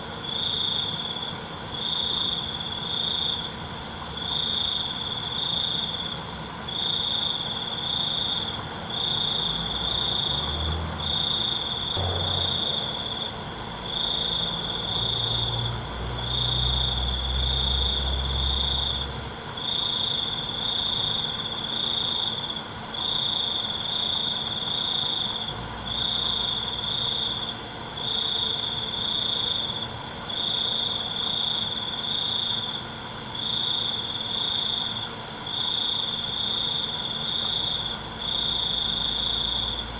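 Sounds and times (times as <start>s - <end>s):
cricket pulsed chirping: 0.0s - 39.9s
cricket trilling: 0.0s - 39.9s
low rumble: 12.0s - 13.8s.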